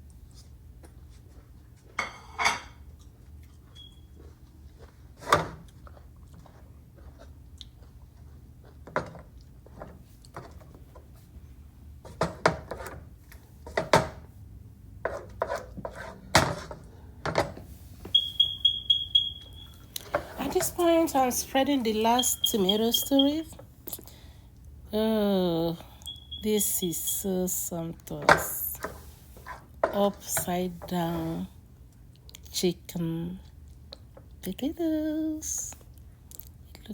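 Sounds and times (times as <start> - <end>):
utensils clinking against dish: 19.4 - 23.4.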